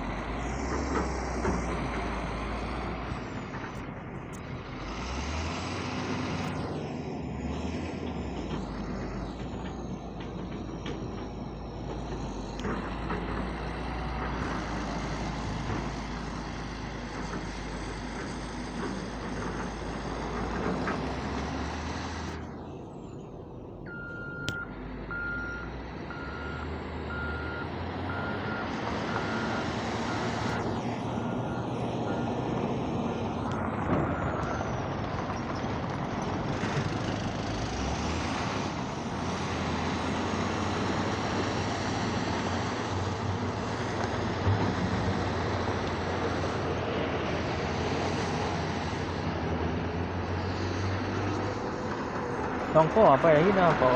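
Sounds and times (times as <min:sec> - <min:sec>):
heavy diesel machinery running: 0:00.0 - 0:53.9
reversing alarm beeps: 0:23.9 - 0:30.7.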